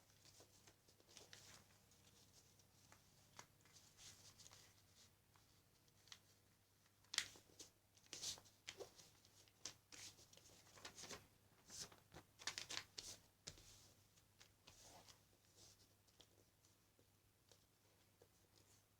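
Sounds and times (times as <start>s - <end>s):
paper rustling and crackling: 7.0s - 13.6s.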